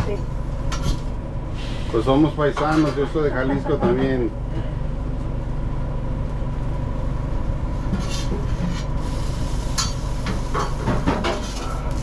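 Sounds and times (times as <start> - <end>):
kitchen machinery drone: 0.0 - 12.0
thin steady whine: 0.0 - 12.0
cooking clatters and scrapes: 7.8 - 12.0.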